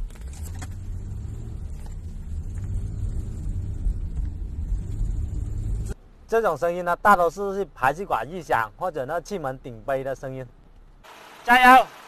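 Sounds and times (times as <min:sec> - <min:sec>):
car engine revving: 0:00.0 - 0:06.0.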